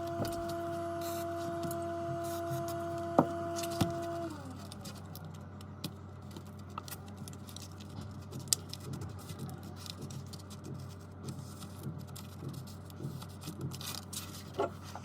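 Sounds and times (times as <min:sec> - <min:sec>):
electric motor humming: 0:00.0 - 0:04.8
steady low hum: 0:00.0 - 0:15.0.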